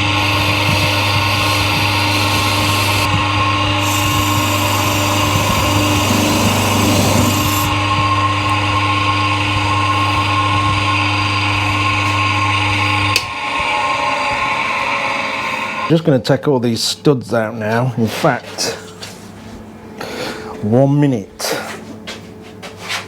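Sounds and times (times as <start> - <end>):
power tool abrasive wheel scrubbing: 0.0 - 15.8.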